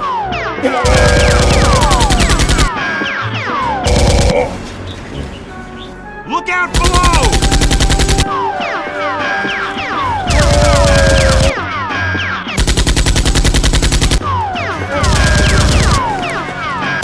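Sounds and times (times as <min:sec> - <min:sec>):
automatic gunfire bursts: 0:00.7 - 0:02.7, 0:03.9 - 0:04.4, 0:06.8 - 0:08.3, 0:10.3 - 0:11.6, 0:12.6 - 0:17.0.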